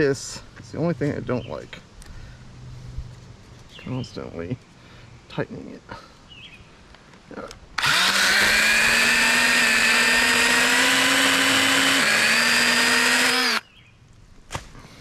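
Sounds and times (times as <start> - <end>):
electric chainsaw whining: 7.8 - 13.6.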